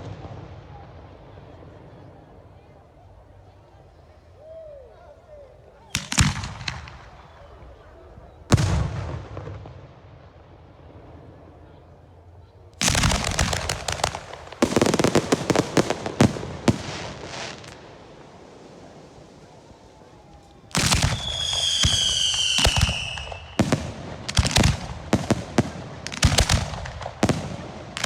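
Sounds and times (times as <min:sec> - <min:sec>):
firework rocket bangs: 0:06.0 - 0:07.2, 0:12.8 - 0:28.0.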